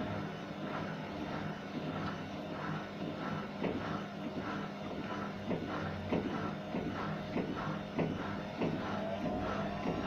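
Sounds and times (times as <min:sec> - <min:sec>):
motor humming: 0:00.0 - 0:10.0
washing machine drum knocking: 0:05.5 - 0:10.0.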